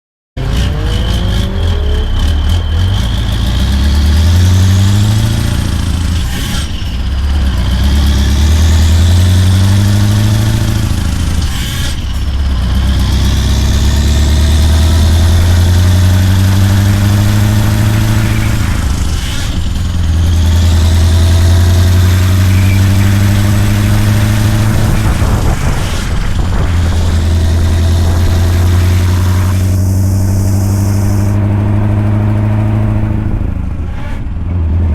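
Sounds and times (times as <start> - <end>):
truck engine pulling through gears: 0.4 - 34.9
high whine: 8.2 - 34.2.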